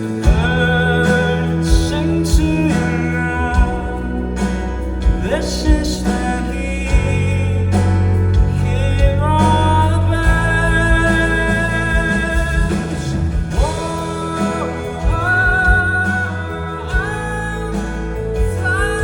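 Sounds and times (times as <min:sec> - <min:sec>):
bass: 0:00.0 - 0:19.0
person singing: 0:00.0 - 0:19.0
drum beat: 0:08.4 - 0:19.0.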